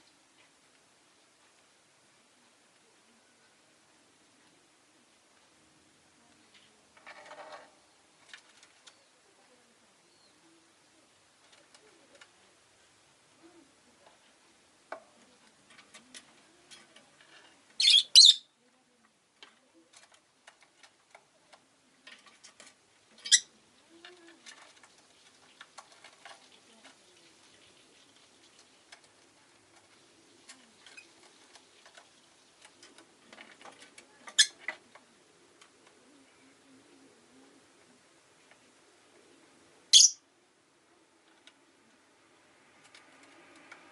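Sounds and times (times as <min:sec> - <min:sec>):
faint chirps and clicks: 0:08.2 - 0:09.2, 0:14.9 - 0:36.5
lovebird sharp high calls: 0:17.8 - 0:18.5, 0:39.9 - 0:40.2.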